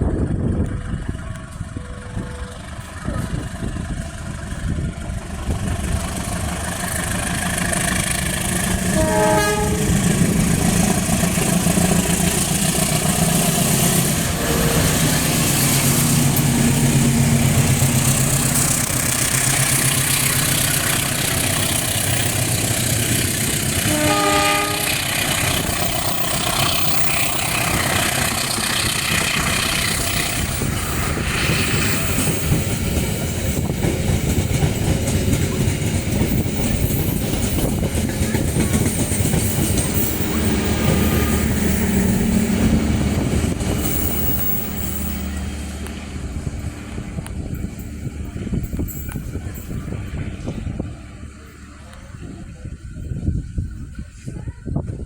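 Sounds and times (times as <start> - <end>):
diesel locomotive rumbling: 0.0 - 55.0
train wheels clattering on rails: 0.1 - 53.6
train horn blast: 8.7 - 10.4, 13.6 - 18.0, 23.5 - 25.8.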